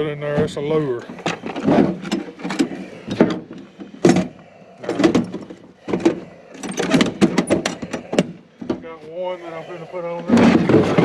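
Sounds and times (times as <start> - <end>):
gear clicking and knocking: 1.2 - 8.9.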